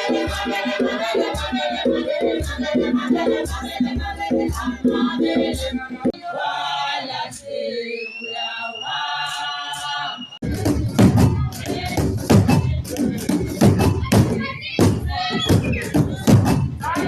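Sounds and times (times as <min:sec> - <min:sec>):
group of voices singing: 0:00.0 - 0:17.0
low beat: 0:10.4 - 0:17.0.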